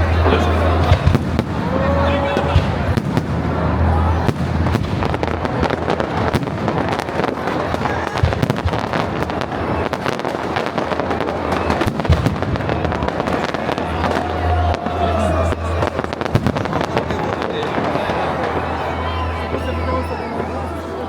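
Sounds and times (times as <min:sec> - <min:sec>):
fireworks crackling and popping: 0:00.0 - 0:20.4
fireworks bangs: 0:00.0 - 0:21.0.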